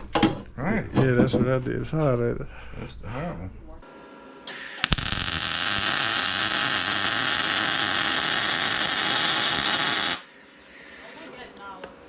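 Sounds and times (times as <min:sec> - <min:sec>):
welder arc popping: 0:04.5 - 0:10.3
welder arc sizzling: 0:04.5 - 0:11.4.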